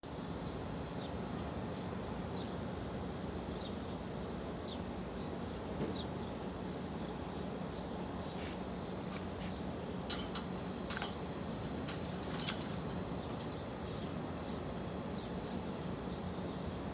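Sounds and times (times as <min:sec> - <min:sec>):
steady background hum: 0:00.0 - 0:16.9
lovebirds chirping: 0:07.4 - 0:16.9.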